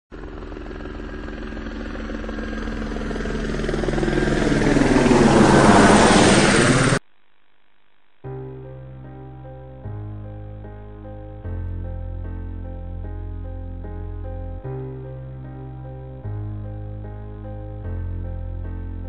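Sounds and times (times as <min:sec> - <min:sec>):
model plane motor and propeller: 0:00.2 - 0:07.0.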